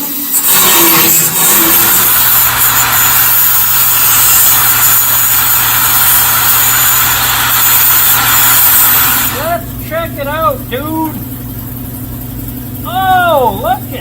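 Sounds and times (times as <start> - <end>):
power tool on sheet metal: 0.0 - 11.2.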